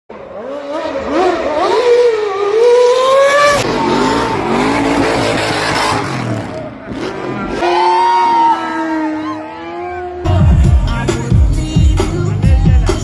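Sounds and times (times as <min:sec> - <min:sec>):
motorcycle engine revving: 0:00.1 - 0:07.8.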